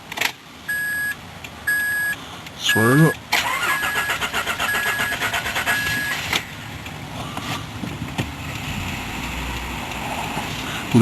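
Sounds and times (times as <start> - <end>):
warning chime beeping: 1.7 - 6.2
engine starter cranking: 3.3 - 6.5.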